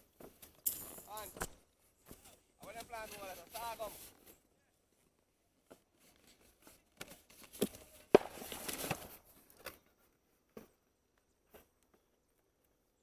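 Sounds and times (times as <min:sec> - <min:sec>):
brush rustling and crackling: 0:00.2 - 0:10.1.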